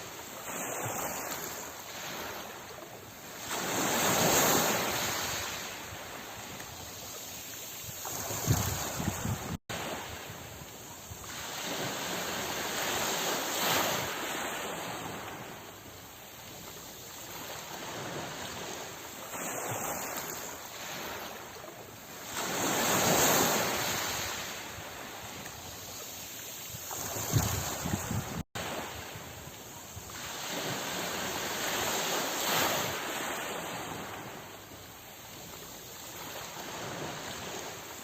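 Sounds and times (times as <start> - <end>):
sea waves breaking: 0.0 - 38.0.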